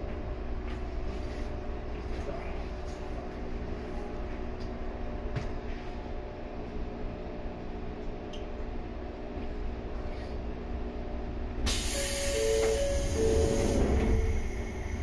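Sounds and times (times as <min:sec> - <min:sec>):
train rumble with humming tones: 0:00.0 - 0:15.0
loud hiss: 0:11.7 - 0:14.4.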